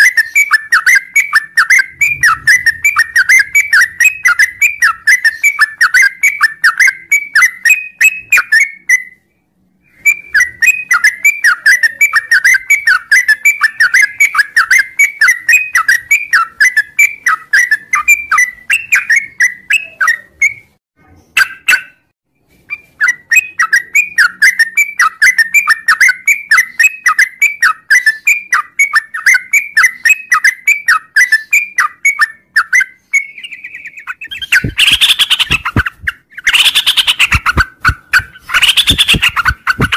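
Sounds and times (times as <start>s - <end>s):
bird singing rapid whistled notes: 0.0s - 20.8s, 21.4s - 39.9s.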